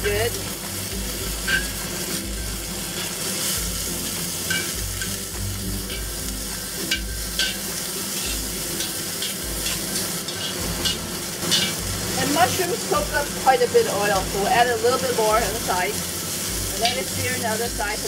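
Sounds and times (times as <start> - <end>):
mushrooms sizzling in hot oil: 0.0 - 18.0
metal tongs knocking on wok: 1.4 - 1.8, 4.5 - 5.2, 6.9 - 11.8, 16.8 - 17.1.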